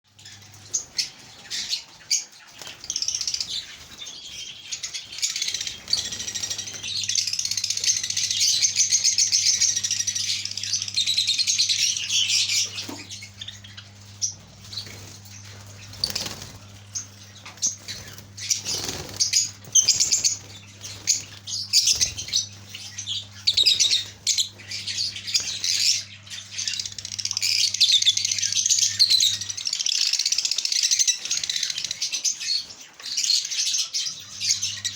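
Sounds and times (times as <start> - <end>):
birds chattering: 0.1 - 34.9
steady low hum: 3.4 - 29.7
wing flutters: 13.9 - 22.7.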